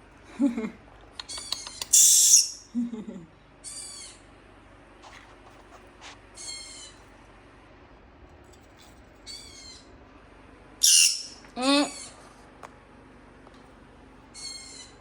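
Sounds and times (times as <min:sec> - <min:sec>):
parrot chirping and squawking: 0:01.2 - 0:02.7, 0:03.6 - 0:04.3, 0:06.4 - 0:07.0, 0:09.2 - 0:09.9, 0:10.8 - 0:12.2, 0:14.3 - 0:15.0.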